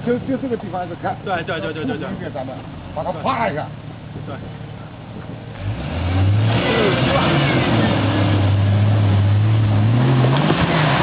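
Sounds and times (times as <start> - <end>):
car engine revving: 2.6 - 11.0.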